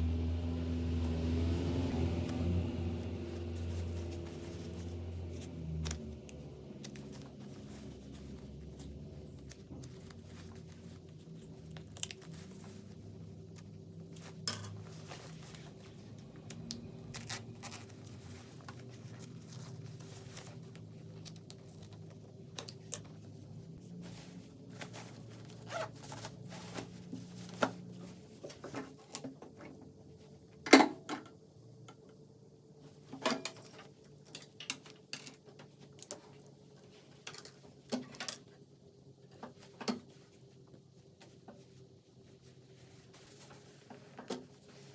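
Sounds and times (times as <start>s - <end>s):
fabric being handled: 2.9s - 6.2s, 23.1s - 28.8s.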